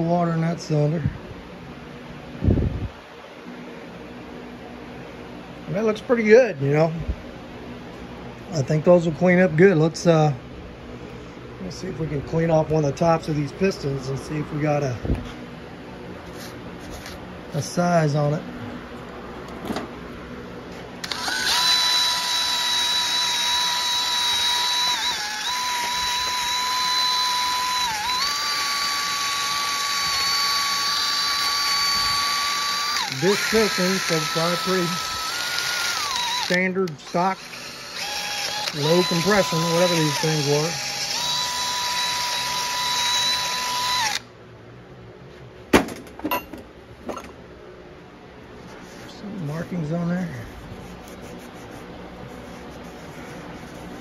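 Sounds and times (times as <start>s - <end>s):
electric drill whining: 21.0s - 44.3s.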